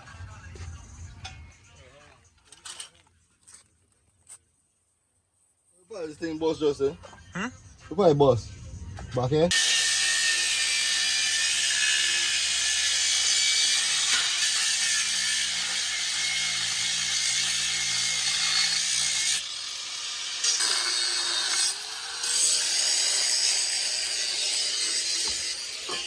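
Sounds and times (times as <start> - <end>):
power tool cutting: 9.5 - 26.0.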